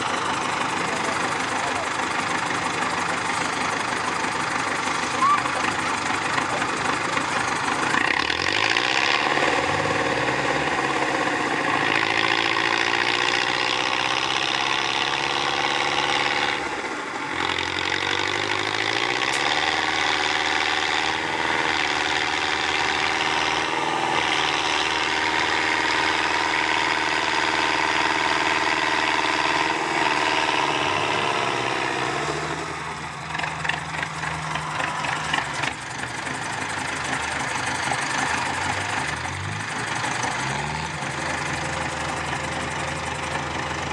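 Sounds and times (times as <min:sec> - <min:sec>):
truck engine revving: 0:00.0 - 0:43.9.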